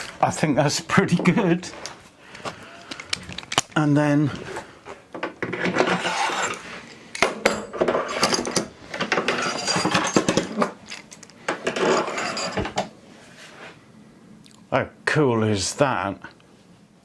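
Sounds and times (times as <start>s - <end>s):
knocks clinks and scraping of parts: 1.2s - 3.8s, 4.4s - 12.9s.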